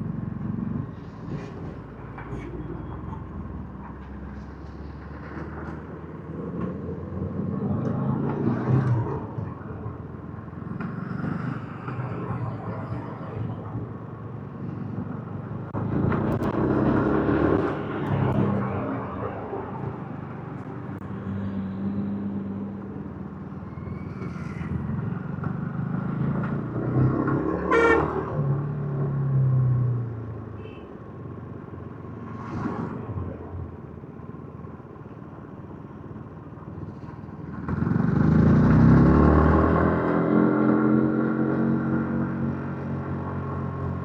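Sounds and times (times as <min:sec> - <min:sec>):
horn tooting: 0:27.6 - 0:28.3.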